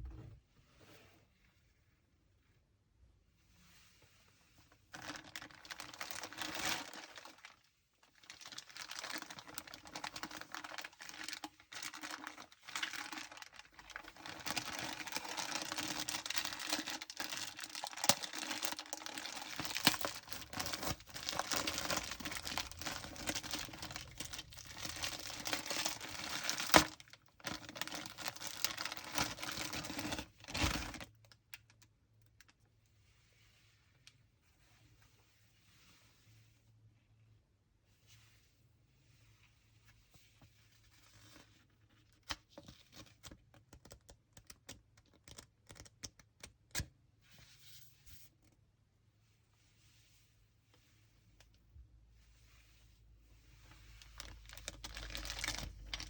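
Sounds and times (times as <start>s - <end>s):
packaging crinkling and rustling: 4.9s - 31.7s, 53.6s - 56.0s.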